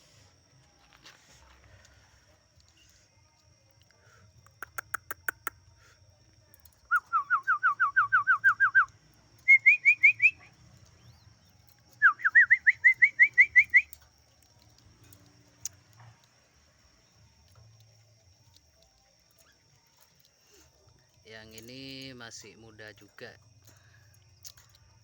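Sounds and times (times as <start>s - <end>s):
sharp clicks: 3.8s - 5.7s
bird whistling upslurred notes: 6.8s - 10.4s, 12.0s - 14.0s.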